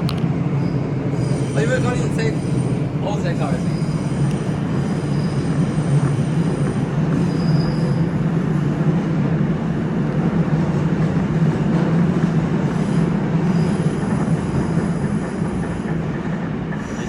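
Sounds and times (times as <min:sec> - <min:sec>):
subway train rumbling: 0:00.0 - 0:17.0
faint high wheel squeal: 0:00.6 - 0:08.2, 0:12.9 - 0:15.9, 0:16.8 - 0:17.0.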